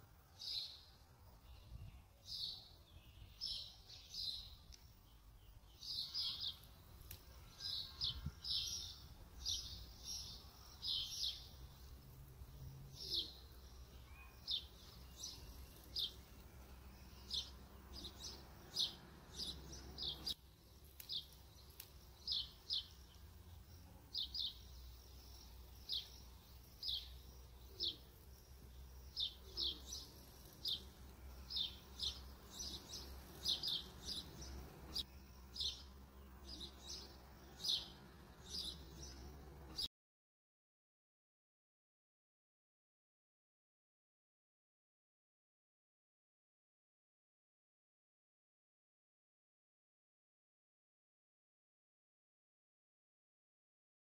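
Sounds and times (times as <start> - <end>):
birds chirping: 0.4 - 39.9.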